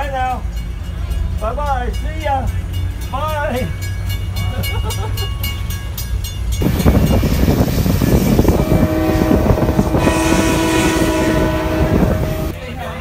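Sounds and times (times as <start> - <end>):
train wheels rumbling and clattering: 0.0 - 13.0
locomotive horn chord: 8.4 - 12.6.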